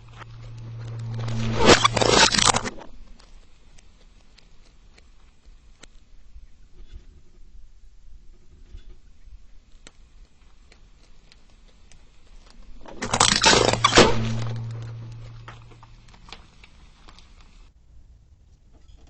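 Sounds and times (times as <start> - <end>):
low hum: 0.0 - 3.5, 12.5 - 16.7
small clicks: 0.0 - 6.1, 9.6 - 17.7.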